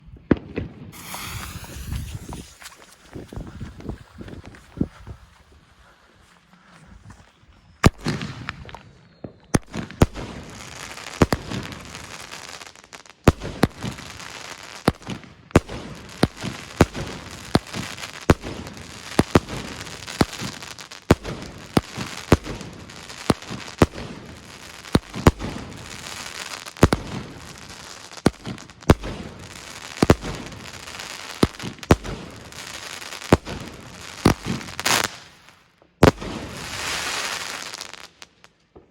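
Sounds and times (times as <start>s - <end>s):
fireworks bangs: 0.3s - 4.6s, 14.9s - 35.4s, 36.0s - 38.9s.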